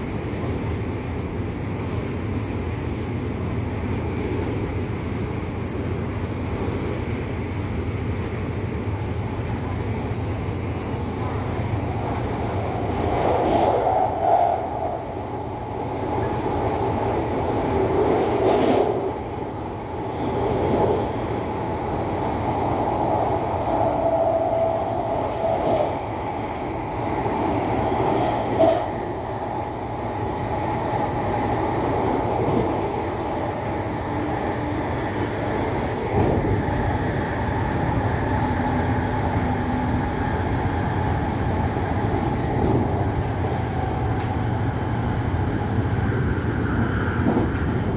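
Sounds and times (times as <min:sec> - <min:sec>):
electric train rumbling on rails: 0:00.0 - 0:47.9
train clicks: 0:28.0 - 0:29.0.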